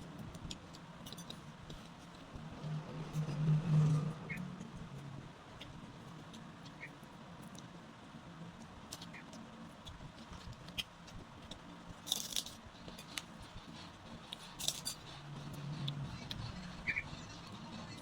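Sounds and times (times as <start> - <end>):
crisp food crunching: 9.8 - 13.3.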